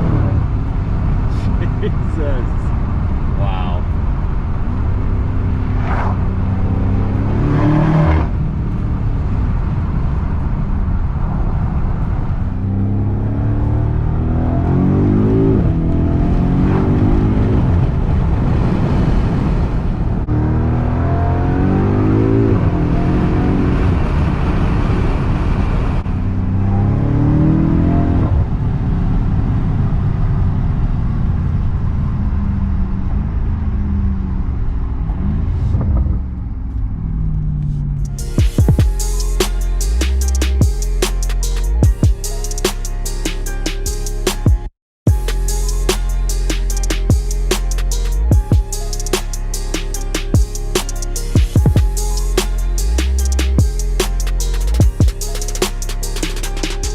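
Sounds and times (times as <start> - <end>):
engine throttle revs: 5.2 - 9.0.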